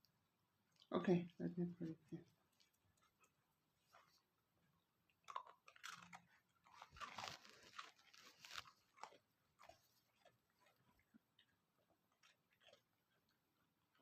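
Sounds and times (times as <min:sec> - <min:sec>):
crunching hard biscuit: 0:05.1 - 0:14.0.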